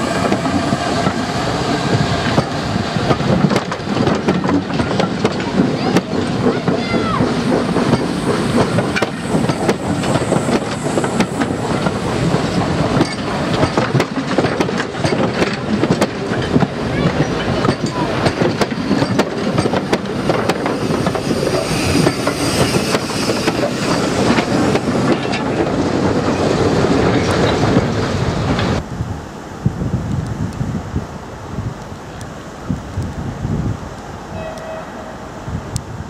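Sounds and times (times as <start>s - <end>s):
wheels clacking over rail joints: 0.0s - 28.8s
train wheels rumbling on rails: 0.0s - 36.0s.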